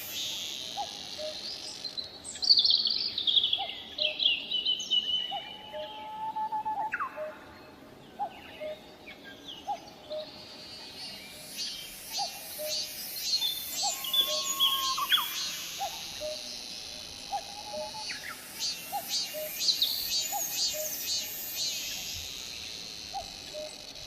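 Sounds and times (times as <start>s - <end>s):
cicadas buzzing: 0.0s - 3.4s, 9.6s - 24.0s
songbirds chirping and trilling: 0.0s - 24.0s
cuckoo calling: 8.2s - 8.8s, 11.6s - 22.4s, 23.1s - 23.9s.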